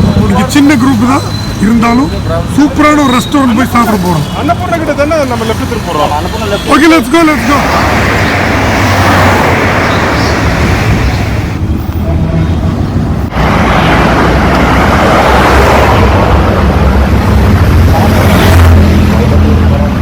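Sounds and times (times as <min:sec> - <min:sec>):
wind rushing over microphone: 0:07.4 - 0:19.2.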